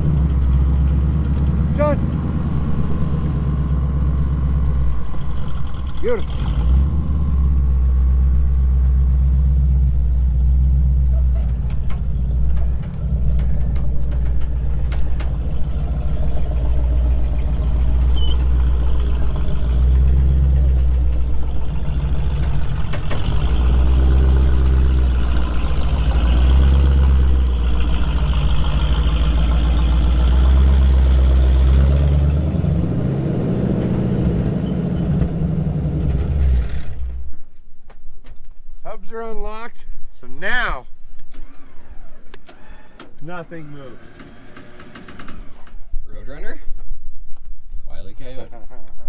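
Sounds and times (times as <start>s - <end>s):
vehicle engine running: 0.0s - 37.5s.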